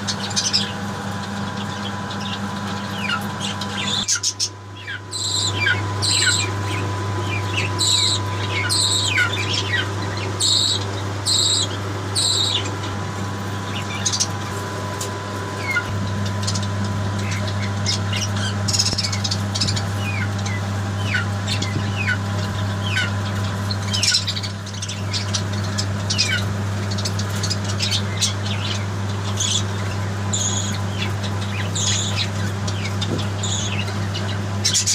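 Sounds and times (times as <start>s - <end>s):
birds chirping and calling: 0.0s - 34.9s
steady low hum: 0.0s - 34.9s.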